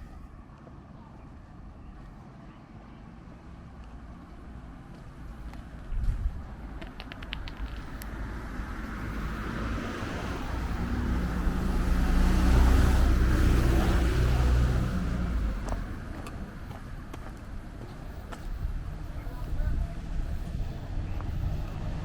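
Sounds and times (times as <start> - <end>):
vehicle driving past: 8.1 - 17.1, 18.5 - 22.0.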